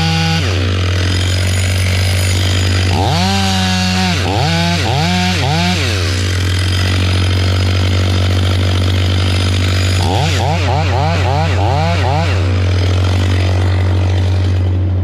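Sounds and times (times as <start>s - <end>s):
chainsaw revving: 0.0s - 15.0s.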